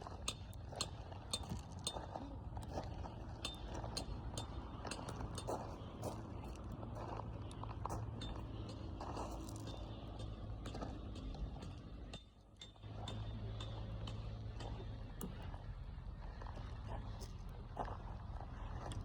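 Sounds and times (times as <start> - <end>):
low fire rumble: 12.8 - 19.0.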